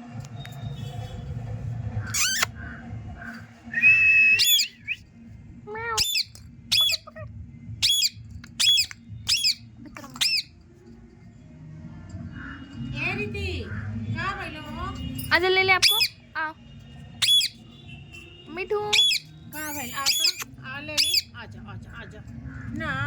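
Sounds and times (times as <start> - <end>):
parrot whistle: 2.1 - 2.5, 3.7 - 5.0, 6.0 - 7.2, 7.8 - 9.6, 15.8 - 16.2, 17.2 - 17.6, 18.9 - 21.3
parrot squawking: 2.1 - 2.8, 4.4 - 4.8, 5.8 - 10.5, 15.7 - 16.2, 17.2 - 17.6, 18.9 - 21.4.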